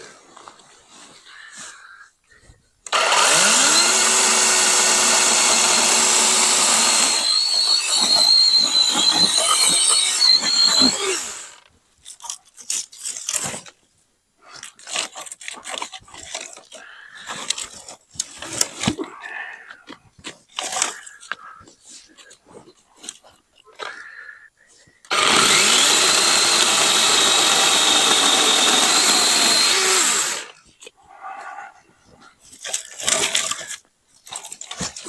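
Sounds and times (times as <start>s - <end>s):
chainsaw cutting wood: 2.9s - 11.7s, 25.1s - 30.6s.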